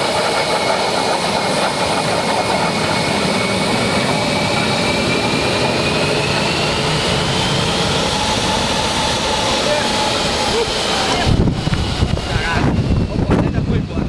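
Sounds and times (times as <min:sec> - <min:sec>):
aircraft engines with high whine: 0:00.0 - 0:14.0.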